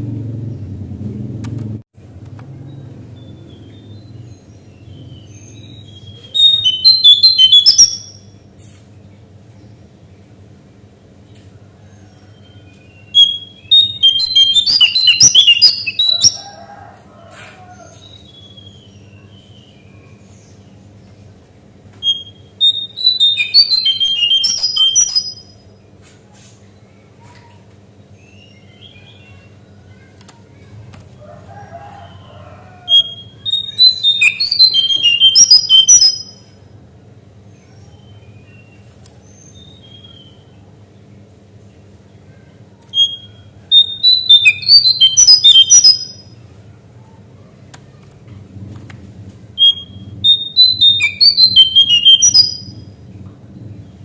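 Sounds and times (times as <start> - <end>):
bird singing high jumbled notes: 2.7 - 8.4, 12.2 - 16.5, 22.0 - 25.6, 32.9 - 36.5, 43.0 - 46.3, 49.6 - 52.8.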